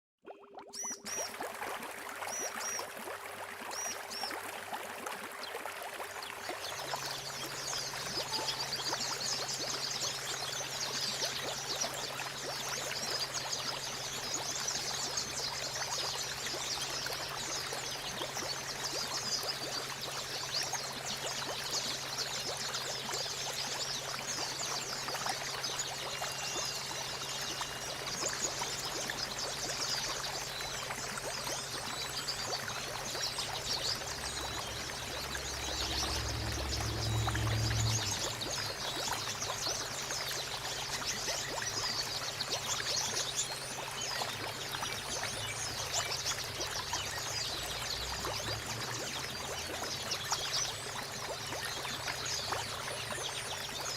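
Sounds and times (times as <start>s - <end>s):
running water: 0.2s - 53.9s
high twittering of birds: 7.1s - 11.8s, 25.6s - 44.2s.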